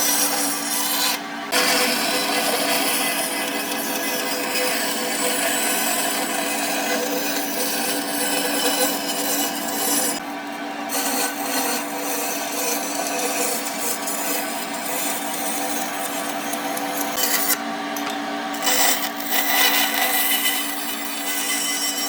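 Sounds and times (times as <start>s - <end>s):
power tool rasping on wood: 0.0s - 17.6s, 18.5s - 22.0s.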